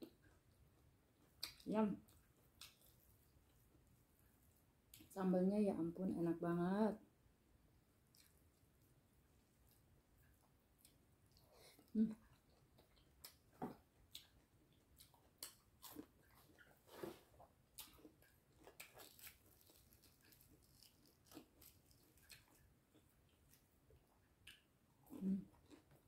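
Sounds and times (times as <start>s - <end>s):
person chewing food: 0.0s - 5.1s, 8.0s - 26.0s.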